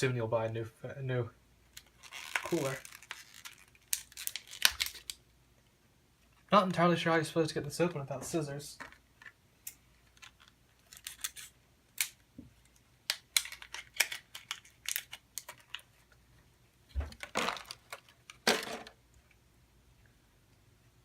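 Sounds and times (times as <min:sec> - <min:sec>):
plastic packaging clicking and crinkling: 0:01.7 - 0:05.2, 0:10.0 - 0:16.2, 0:16.9 - 0:18.9
plastic tearing: 0:01.7 - 0:05.2, 0:10.1 - 0:12.2, 0:13.1 - 0:16.0, 0:17.1 - 0:18.9.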